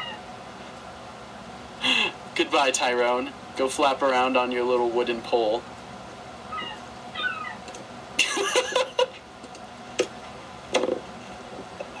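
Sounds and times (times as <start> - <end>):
seagull calling: 6.5 - 7.6.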